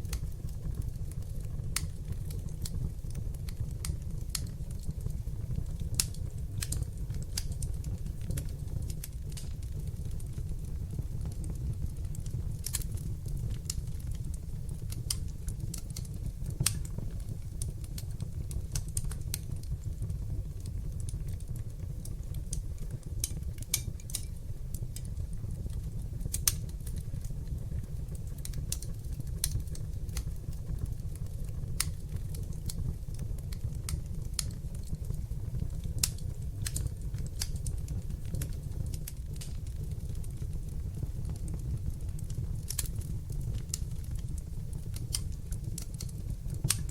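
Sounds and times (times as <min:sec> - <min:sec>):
fire crackling in fireplace: 0:00.0 - 0:46.9.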